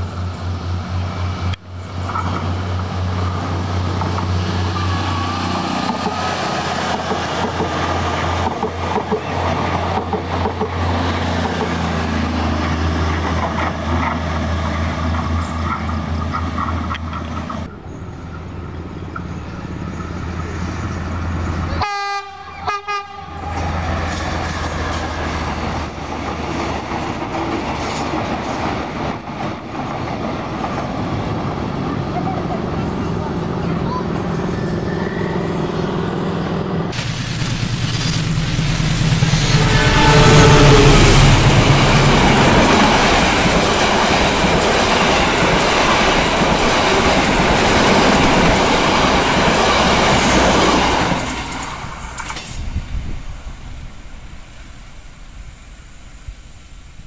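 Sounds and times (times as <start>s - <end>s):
train engine rumble: 0.0s - 57.0s
train horn: 21.7s - 23.8s, 39.2s - 43.0s.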